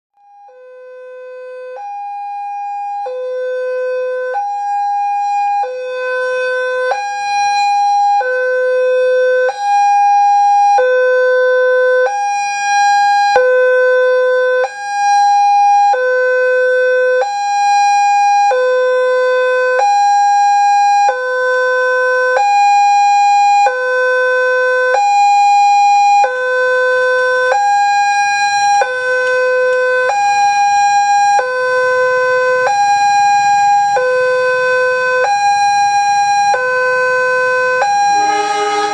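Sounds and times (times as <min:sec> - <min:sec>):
two-tone level crossing alarm: 0:37.8 - 0:38.9.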